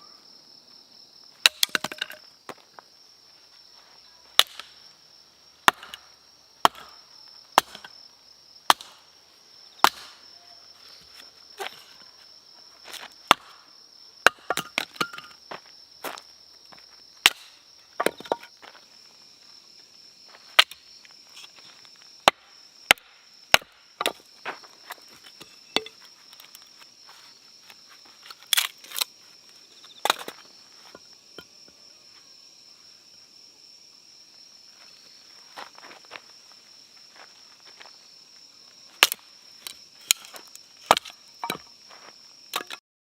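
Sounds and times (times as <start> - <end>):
insects chirring: 0.0 - 42.8
blade chopping wood: 1.4 - 2.2, 4.4 - 4.8, 5.6 - 7.0, 7.6 - 8.0, 8.7 - 9.1, 9.8 - 10.2, 12.9 - 15.4, 17.2 - 18.5, 20.6 - 20.8, 22.2 - 24.3, 30.0 - 31.0, 39.0 - 41.7, 42.5 - 42.8.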